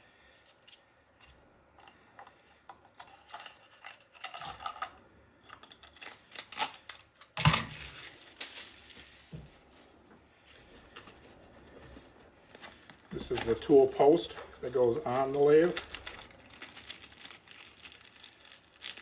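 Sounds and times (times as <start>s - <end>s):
metal parts clicking and clinking: 0.3s - 8.0s, 12.5s - 19.0s
packaging rustling: 5.6s - 19.0s.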